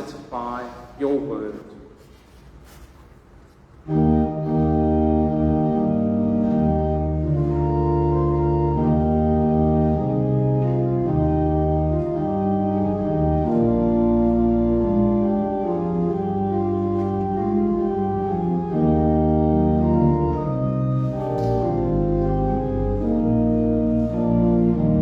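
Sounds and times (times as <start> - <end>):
organ playing a hymn: 3.8 - 25.0.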